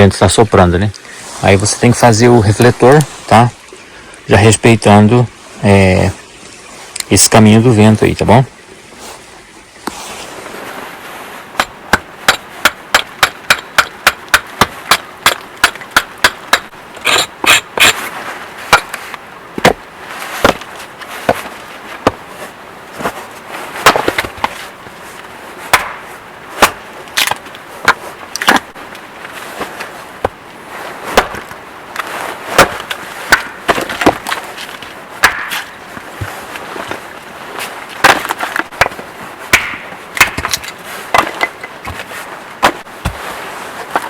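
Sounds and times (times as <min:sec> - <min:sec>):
blade chopping wood: 0:11.6 - 0:18.0, 0:18.7 - 0:19.0, 0:19.6 - 0:19.8, 0:20.4 - 0:22.2, 0:23.8 - 0:24.6, 0:25.7 - 0:28.8, 0:31.1 - 0:34.4, 0:35.2 - 0:37.0, 0:38.0 - 0:43.2.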